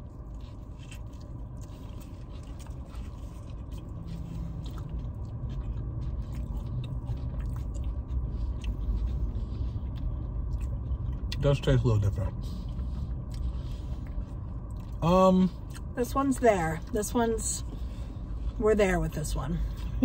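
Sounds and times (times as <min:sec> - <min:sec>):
people chewing with mouth clicks: 0:00.0 - 0:16.0
low rumble inside car: 0:00.0 - 0:20.0.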